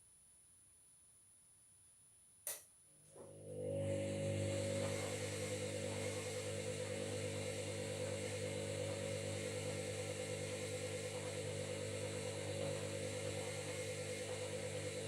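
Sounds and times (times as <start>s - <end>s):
washing machine running: 3.2s - 15.0s.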